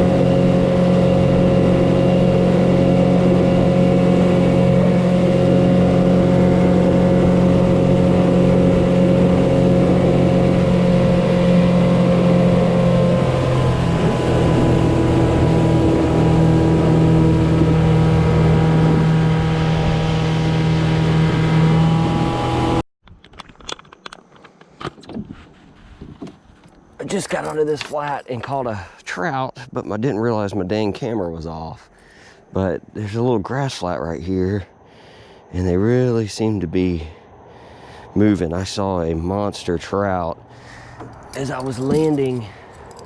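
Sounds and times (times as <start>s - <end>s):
two-stroke outboard motor running: 0.0s - 22.8s, 40.5s - 43.0s.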